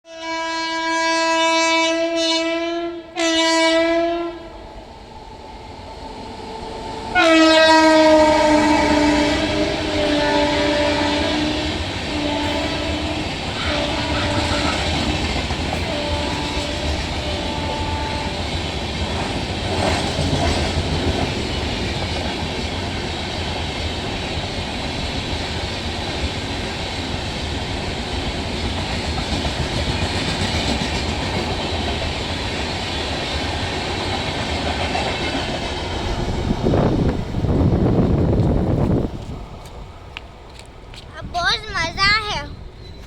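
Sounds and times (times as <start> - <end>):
train horn blasts: 0.1 - 4.5, 7.1 - 18.8
train wheels rumbling and rattling: 4.6 - 43.0.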